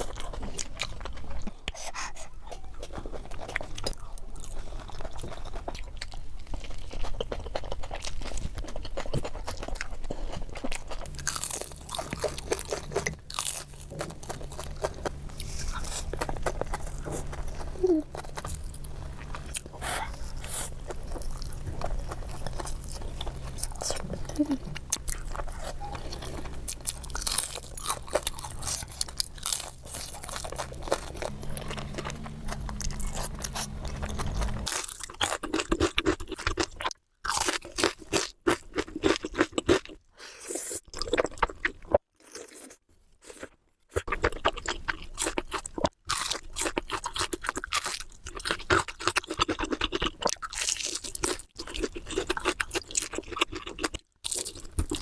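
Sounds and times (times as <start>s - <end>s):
crunching and chewing: 0.0s - 55.0s
low steady hum: 11.0s - 34.7s.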